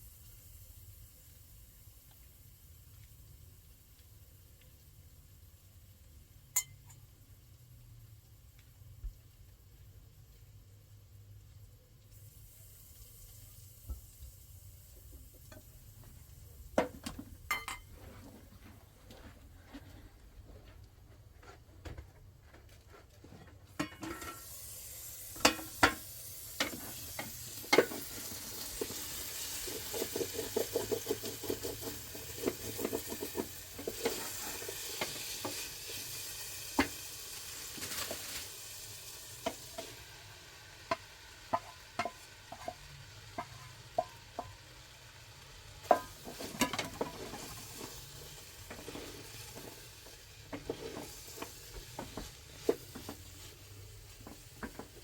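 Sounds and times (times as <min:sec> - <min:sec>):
food sizzling in a pan: 0:00.0 - 0:18.0, 0:23.8 - 0:55.0
utensil knocking against pan: 0:40.9 - 0:42.8, 0:43.4 - 0:44.5.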